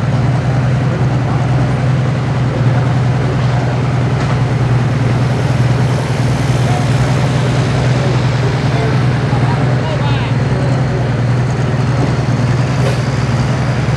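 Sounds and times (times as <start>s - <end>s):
heavy diesel engine running: 0.0s - 13.9s.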